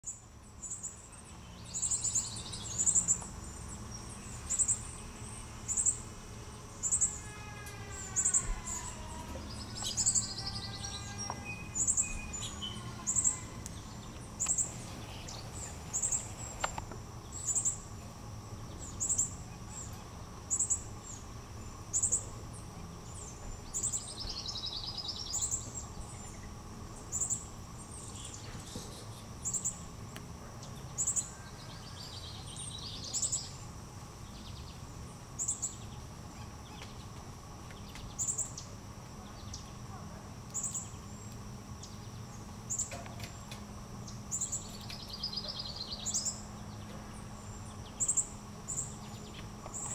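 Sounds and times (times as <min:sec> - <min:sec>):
bird chirping: 0:00.0 - 0:06.0, 0:06.8 - 0:07.2, 0:07.9 - 0:17.8, 0:18.6 - 0:22.3, 0:23.0 - 0:26.5, 0:27.1 - 0:29.8, 0:30.6 - 0:33.6, 0:35.4 - 0:37.1, 0:40.5 - 0:43.4, 0:44.0 - 0:49.9.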